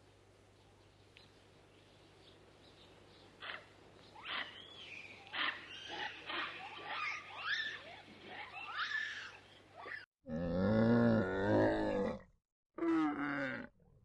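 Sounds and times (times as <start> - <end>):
animal squealing and chirping calls: 3.4 - 10.1.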